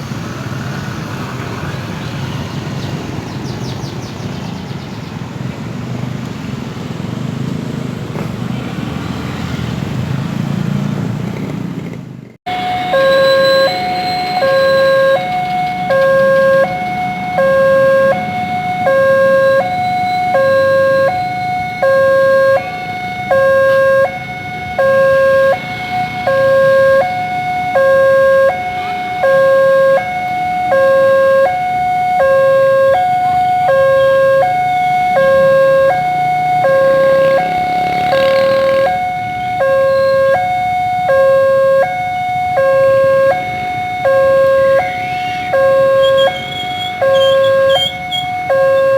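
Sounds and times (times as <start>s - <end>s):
road traffic noise: 0.0s - 48.9s
two-tone level crossing alarm: 12.5s - 48.9s.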